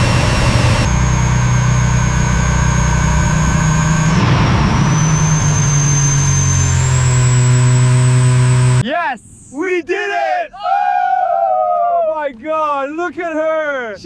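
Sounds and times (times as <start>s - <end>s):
aircraft engine drone with whine: 0.0s - 8.8s.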